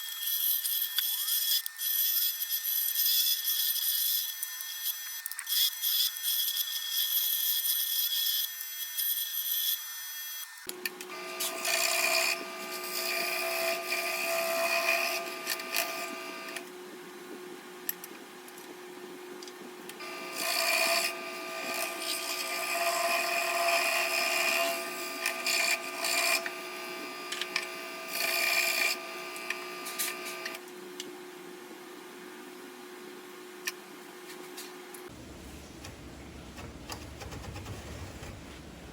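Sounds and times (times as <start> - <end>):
scroll saw motor hum: 10.3 - 16.7, 19.9 - 30.7
saw blade cutting wood: 11.3 - 16.6, 20.0 - 30.6.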